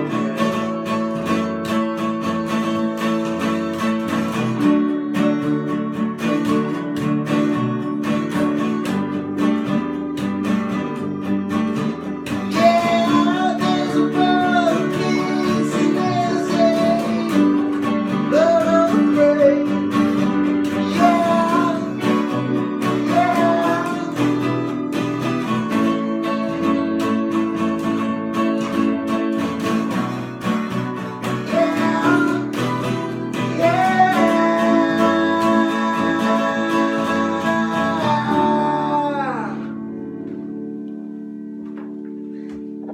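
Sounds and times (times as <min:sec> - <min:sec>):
acoustic guitar strumming: 0:00.0 - 0:42.9.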